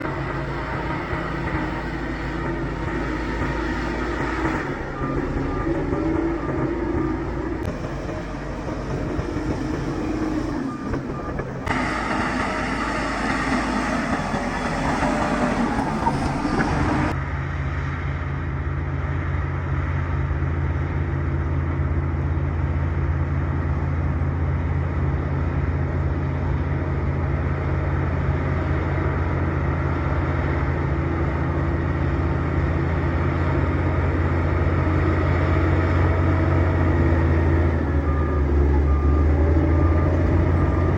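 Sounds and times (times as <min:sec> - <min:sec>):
bulldozer diesel engine drone: 0:00.0 - 0:40.9.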